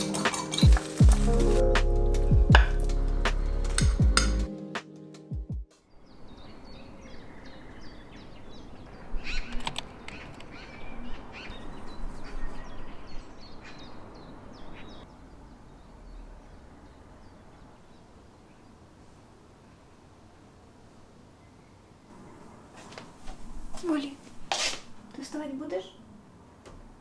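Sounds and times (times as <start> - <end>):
birds chirping and singing: 0.0 - 1.6.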